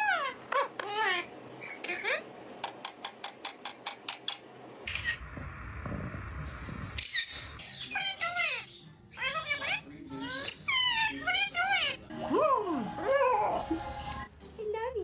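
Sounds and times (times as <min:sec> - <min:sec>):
parrot squawking and chirping: 0:00.0 - 0:05.3, 0:07.0 - 0:12.1
low rumbling noise: 0:04.9 - 0:07.6.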